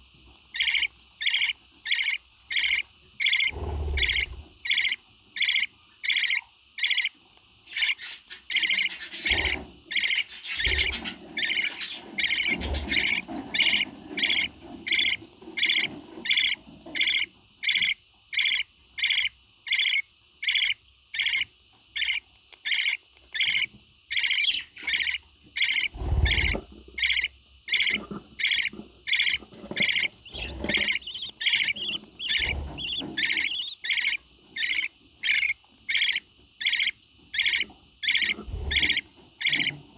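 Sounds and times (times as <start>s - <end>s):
parrot chirping: 0.2s - 39.9s.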